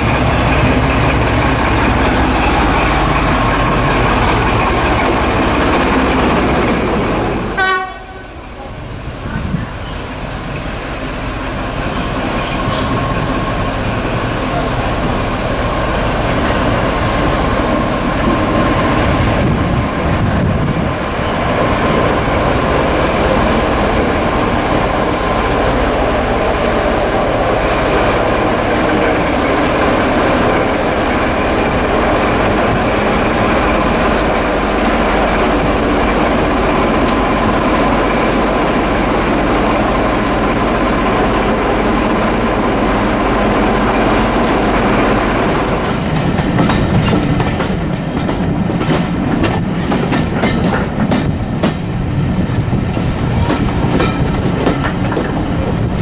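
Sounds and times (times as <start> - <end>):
wheels clacking over rail joints: 0.0 - 8.2, 44.4 - 51.9, 52.6 - 56.0
train running noise with high hum: 0.0 - 56.0.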